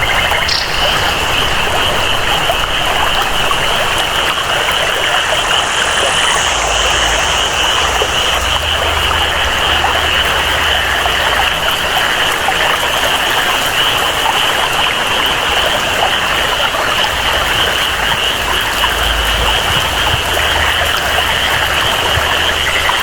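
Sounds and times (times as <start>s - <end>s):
flowing water: 0.0s - 23.0s
steady rain: 0.0s - 23.0s
high-pitched animal chorus: 0.1s - 8.8s
faint high sound: 0.4s - 9.1s.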